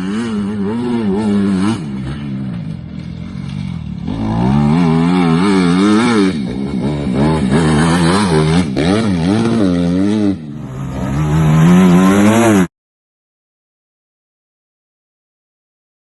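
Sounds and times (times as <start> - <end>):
dirt bike engine revving: 0.0 - 12.7.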